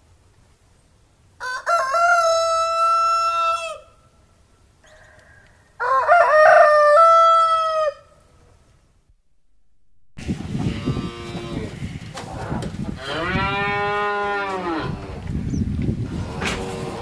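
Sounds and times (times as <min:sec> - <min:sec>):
cow mooing: 0:13.0 - 0:15.1.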